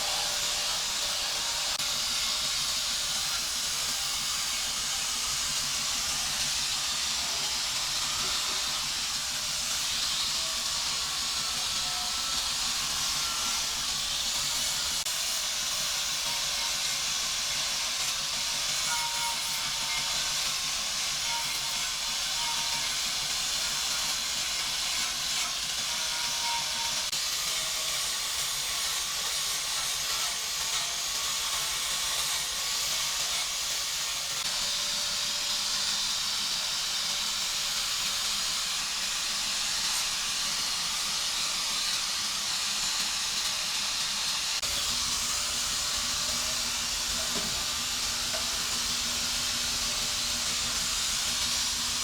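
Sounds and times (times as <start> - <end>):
steady hiss: 30.4 - 52.0.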